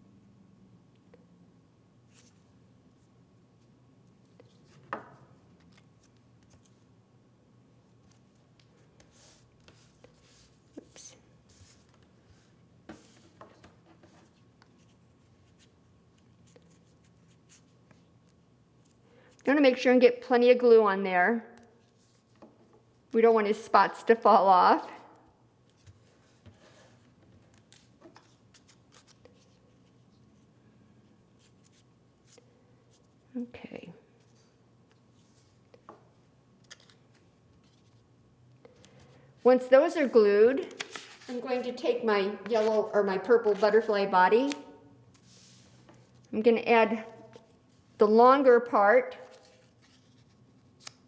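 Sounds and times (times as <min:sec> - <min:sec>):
soft rubbing of paper: 0:09.0 - 0:18.2, 0:21.8 - 0:22.4, 0:25.8 - 0:27.1, 0:34.2 - 0:35.6, 0:45.1 - 0:46.3.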